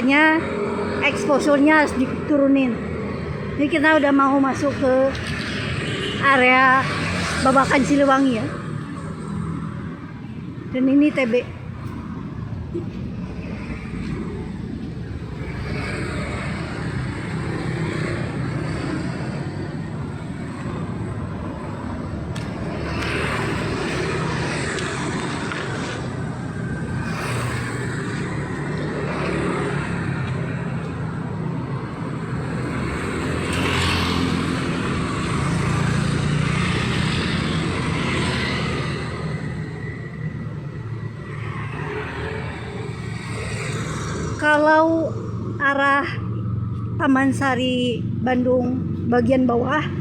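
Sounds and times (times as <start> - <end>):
low rumble of engines: 0.0 - 50.0
vehicles passing close by: 0.0 - 50.0.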